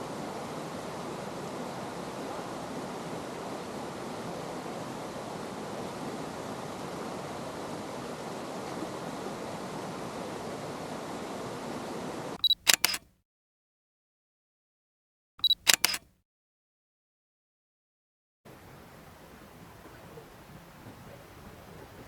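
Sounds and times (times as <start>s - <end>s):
mountain stream rushing: 0.0s - 12.4s, 18.5s - 22.0s
sharp clicks: 12.4s - 13.1s, 15.4s - 16.2s.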